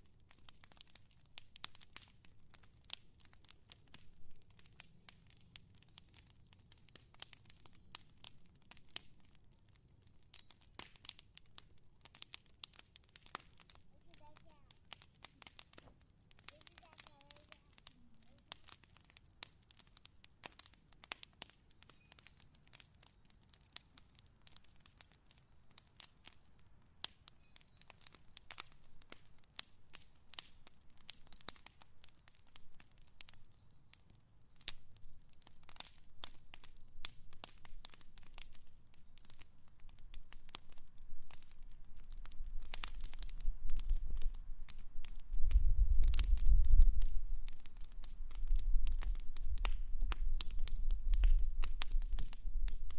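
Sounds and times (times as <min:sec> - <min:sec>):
fire crackling and popping: 0:00.0 - 0:52.9.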